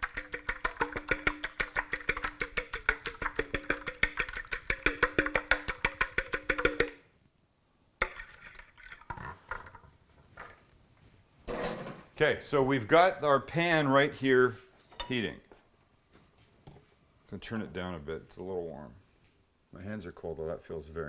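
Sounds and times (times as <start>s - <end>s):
faint kitchen clatter: 0.0s - 7.0s, 8.0s - 12.2s, 14.5s - 18.4s
whisk clicking against bowl: 0.0s - 7.0s, 8.0s - 9.1s.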